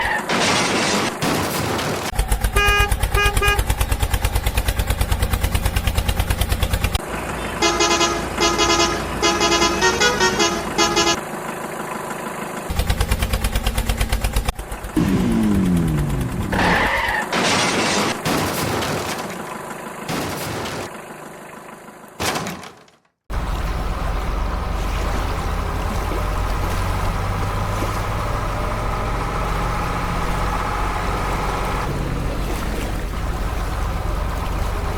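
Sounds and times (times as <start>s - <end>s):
engine chugging: 2.1s - 17.1s, 23.3s - 34.9s
horn honking: 2.4s - 4.0s, 7.4s - 11.3s
bursts of noise: 14.5s - 19.3s.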